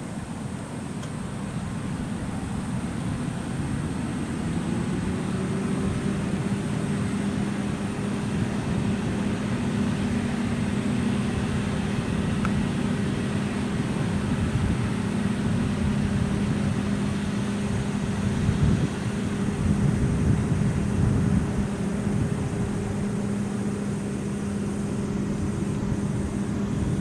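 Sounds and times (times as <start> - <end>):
jet engines humming: 0.0 - 27.0.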